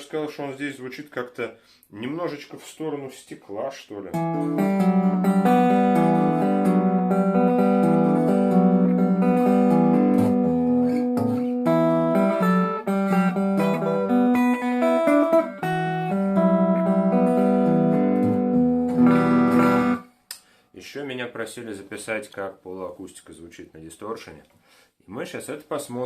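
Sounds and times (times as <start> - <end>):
clean electric guitar: 4.1 - 20.2.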